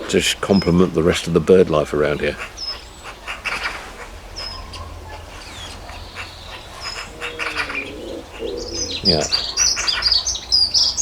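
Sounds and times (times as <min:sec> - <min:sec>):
dove cooing: 0:00.0 - 0:10.6
songbirds chirping and twittering: 0:00.0 - 0:11.0.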